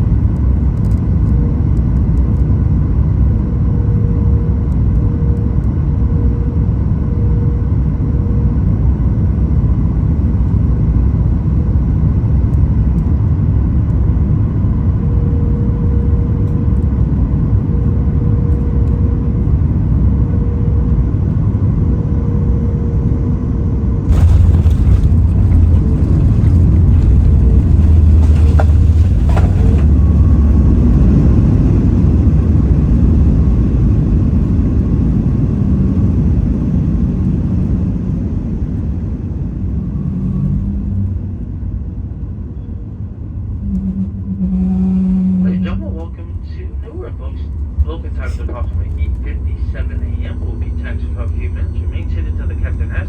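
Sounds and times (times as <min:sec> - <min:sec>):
airliner cabin engine rumble: 0:00.0 - 0:53.0
landing roll rumble: 0:24.1 - 0:32.9.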